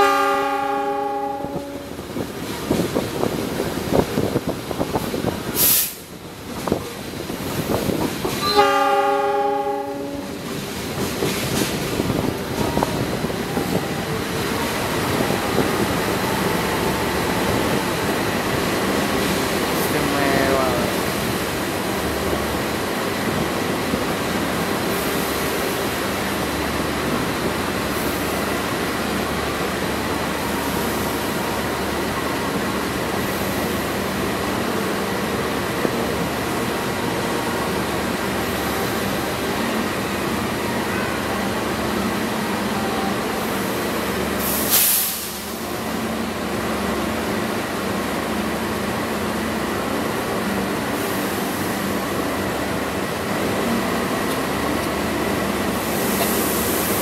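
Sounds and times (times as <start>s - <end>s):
train wheels rumbling on rails: 0.0s - 57.0s
short loud hiss: 5.6s - 6.1s, 44.4s - 45.6s.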